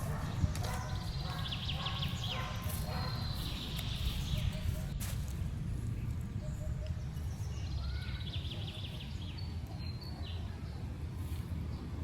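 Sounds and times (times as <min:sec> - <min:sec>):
bird chirping: 0:00.0 - 0:04.9
low outdoor rumble: 0:00.0 - 0:12.0.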